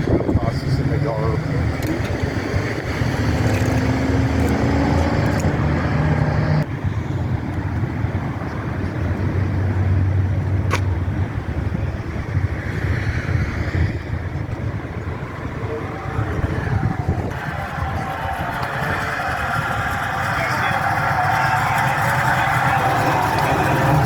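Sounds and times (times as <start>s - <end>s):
car engine running: 0.0s - 6.7s, 16.0s - 24.0s.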